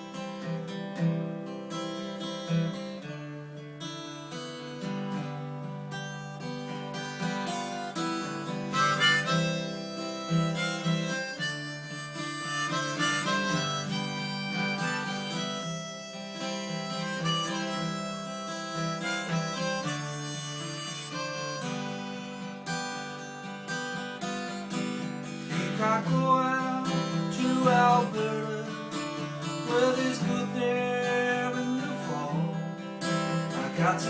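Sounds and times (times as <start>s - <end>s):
strummed acoustic guitar: 0.0s - 34.0s
harmonica melody: 3.8s - 34.0s.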